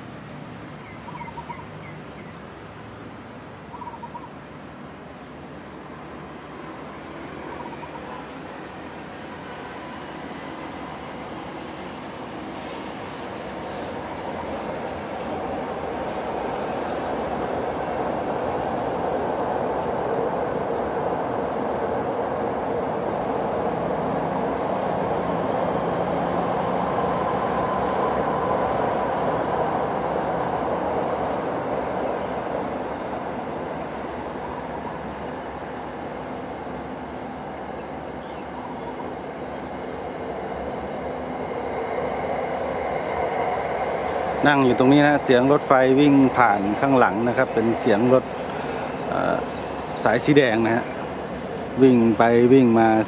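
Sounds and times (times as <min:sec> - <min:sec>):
diesel locomotive engine hum: 0:00.0 - 0:53.0
electric commuter trains running: 0:00.0 - 0:53.0.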